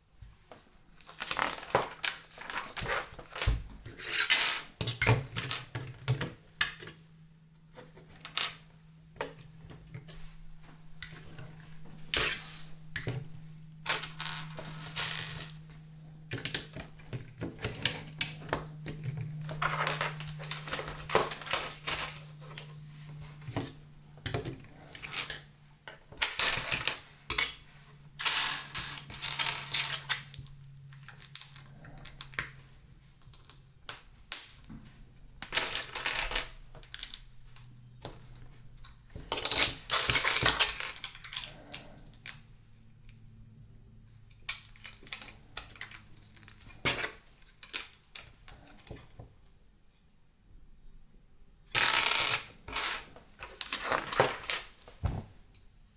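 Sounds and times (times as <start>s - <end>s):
plastic pieces clicking and clattering: 51.8s - 54.7s.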